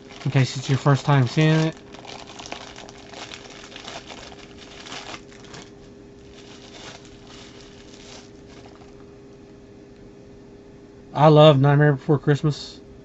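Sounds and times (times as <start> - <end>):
plastic bag crinkling: 0.0 - 9.1
faint steady hum: 0.0 - 13.0.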